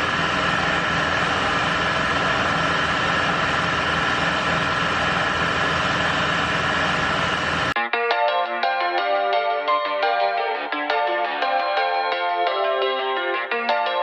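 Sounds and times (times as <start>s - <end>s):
faint steady whine: 0.0s - 7.8s
spray booth fans: 0.0s - 7.8s.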